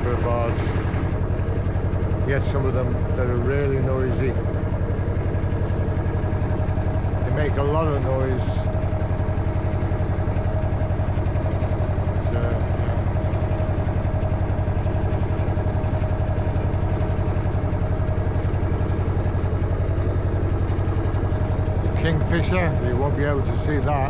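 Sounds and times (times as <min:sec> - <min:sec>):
boat engine throbbing: 0:00.0 - 0:24.0.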